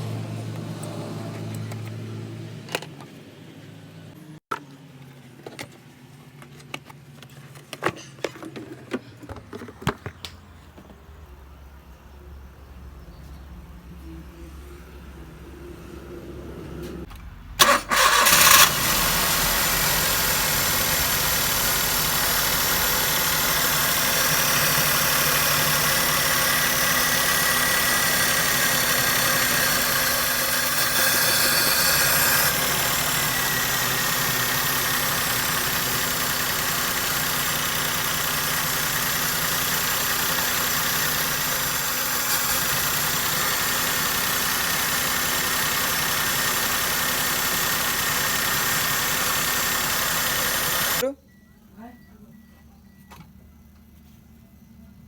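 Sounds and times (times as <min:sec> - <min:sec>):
car engine starting and idling: 0:09.1 - 0:51.0.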